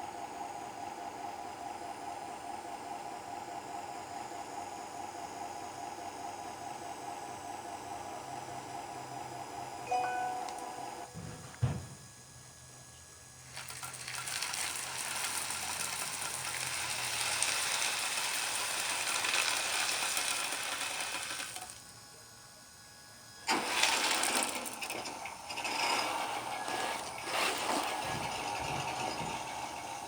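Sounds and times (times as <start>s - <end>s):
model machine motors and gears: 23.3s - 30.0s.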